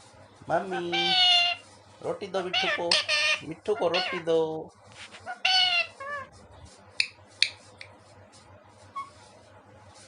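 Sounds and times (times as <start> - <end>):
parrot calling: 0.6 - 1.7, 2.3 - 4.4, 5.2 - 6.3.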